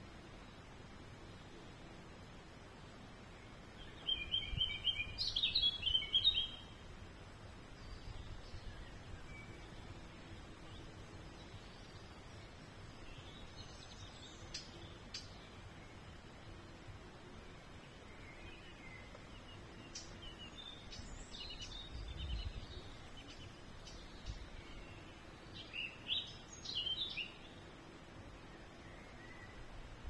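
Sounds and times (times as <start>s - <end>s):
outdoor background noise: 0.0s - 30.0s
songbird twittering: 3.4s - 6.8s, 7.7s - 16.8s, 17.4s - 27.6s, 28.4s - 29.7s.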